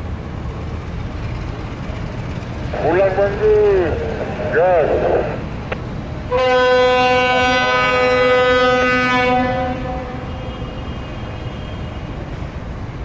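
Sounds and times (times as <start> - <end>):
locomotive engine rumble: 0.0 - 13.0
locomotive air horn blast: 6.3 - 12.2.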